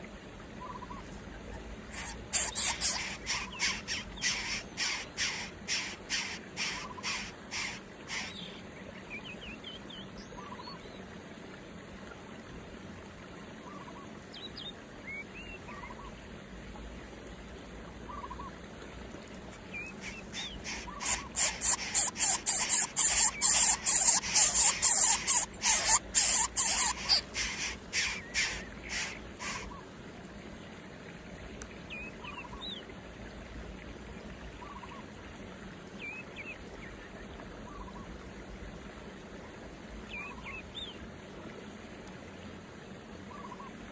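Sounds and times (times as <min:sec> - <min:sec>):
harsh bird calls: 0:01.9 - 0:08.6, 0:19.8 - 0:29.8
faint bird chirps: 0:01.9 - 0:11.0, 0:19.7 - 0:29.8.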